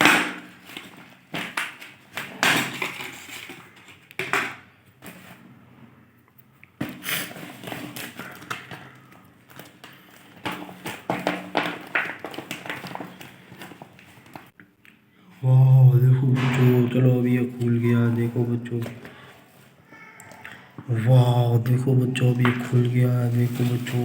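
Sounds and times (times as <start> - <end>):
packaging crinkling and tearing: 0.0 - 5.4, 6.8 - 14.6, 22.2 - 24.0.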